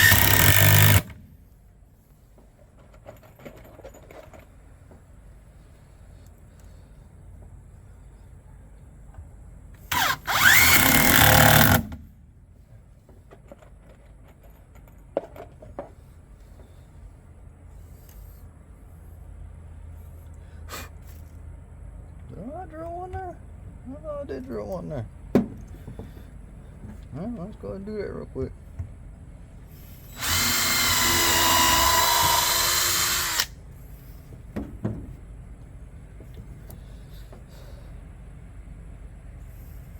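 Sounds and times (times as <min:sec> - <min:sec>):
power drill into wood: 0:00.0 - 0:01.2, 0:09.9 - 0:11.9, 0:30.1 - 0:33.6
light knocks: 0:25.3 - 0:27.1, 0:34.3 - 0:35.2.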